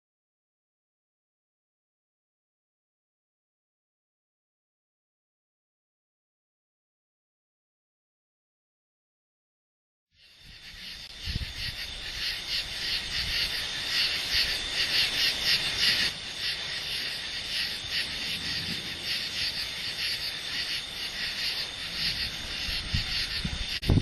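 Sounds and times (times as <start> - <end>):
insects chirping: 10.2 - 24.0.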